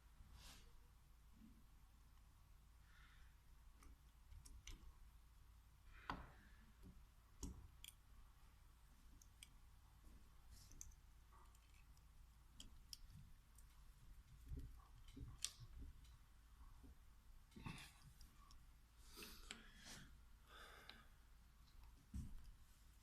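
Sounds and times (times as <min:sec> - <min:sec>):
small metal parts and tools clicking: 0:10.6 - 0:16.2.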